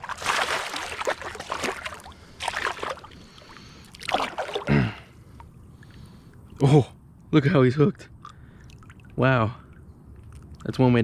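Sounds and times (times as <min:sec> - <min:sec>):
fish splashing at surface: 0:00.0 - 0:04.7.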